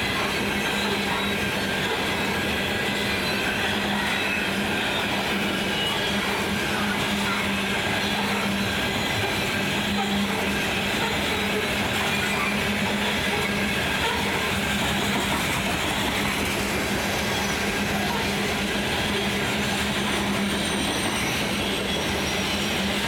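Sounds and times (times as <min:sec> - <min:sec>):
high wheel whine: 0:00.0 - 0:23.0
train wheels clattering on rails: 0:00.0 - 0:23.0.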